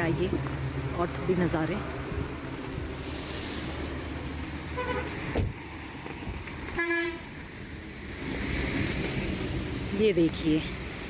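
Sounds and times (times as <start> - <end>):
car horn toot: 4.7 - 5.2, 6.8 - 7.3.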